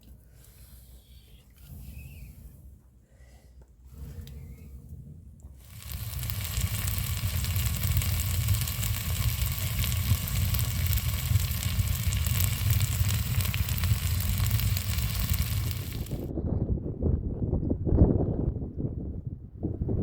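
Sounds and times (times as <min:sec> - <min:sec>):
low rumble: 0:03.8 - 0:16.8
crackling hiss: 0:05.5 - 0:16.3.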